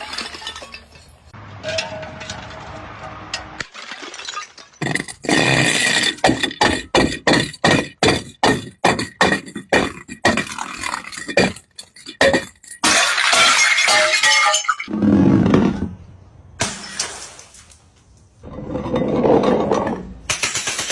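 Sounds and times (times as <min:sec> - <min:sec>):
glass bottles cracking: 0:00.0 - 0:01.3, 0:03.6 - 0:14.9
glass shattering and crunching: 0:00.0 - 0:02.4, 0:03.6 - 0:14.9.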